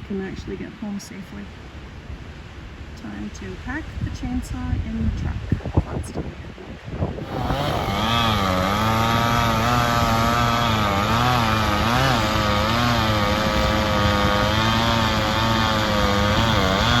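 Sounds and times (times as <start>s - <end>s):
chainsaw engine running: 7.2s - 17.0s.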